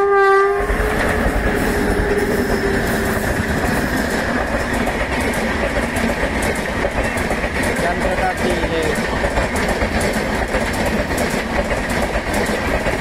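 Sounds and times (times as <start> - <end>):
train horn: 0.0 - 3.3
train coaches rumbling past: 0.0 - 13.0
wheels clacking over rail joints: 0.6 - 13.0.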